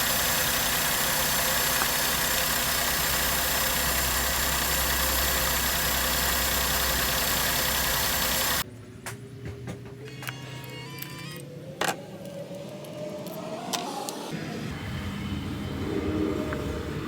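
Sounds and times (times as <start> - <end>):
petrol engine idling: 0.0 - 8.6.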